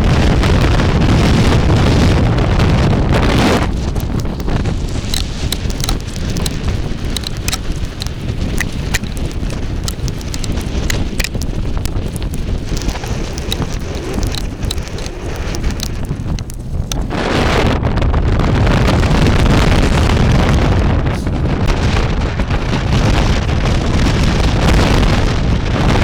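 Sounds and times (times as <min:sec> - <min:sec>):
wind buffeting microphone: 0:00.0 - 0:26.0
sand ticking on microphone: 0:03.1 - 0:17.5.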